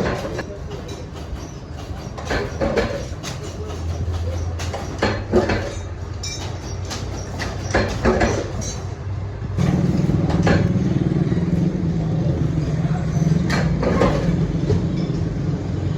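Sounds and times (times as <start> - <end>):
knocks and clatter: 0.0 - 9.0, 9.6 - 15.6
machinery motor hum: 7.9 - 15.9.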